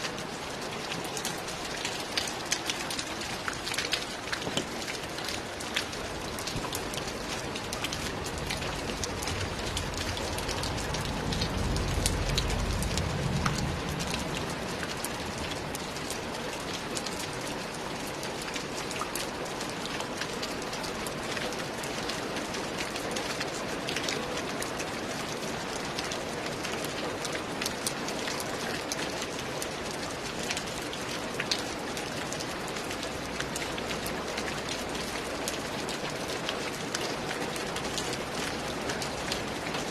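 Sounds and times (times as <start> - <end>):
rain on a roof: 0.0 - 39.9
low rumble: 9.6 - 14.6.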